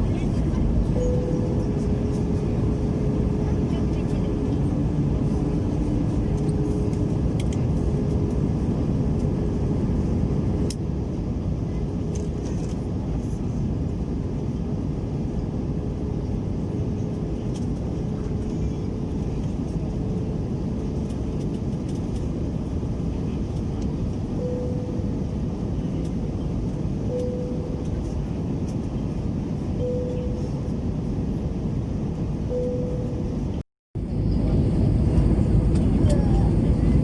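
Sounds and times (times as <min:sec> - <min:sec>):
faint steady whine: 0:00.0 - 0:14.1
airliner cabin engine rumble: 0:00.0 - 0:37.0.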